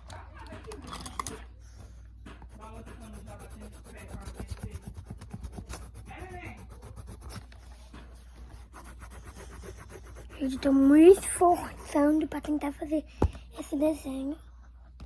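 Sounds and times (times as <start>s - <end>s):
pencil scratching on paper: 2.4s - 12.7s.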